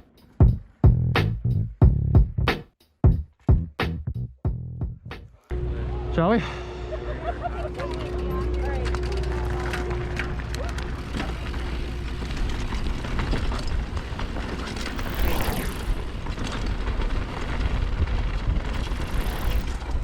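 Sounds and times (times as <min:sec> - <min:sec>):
bike chain and frame rattling: 0:07.6 - 0:20.0
bike tyres on dirt: 0:07.7 - 0:20.0.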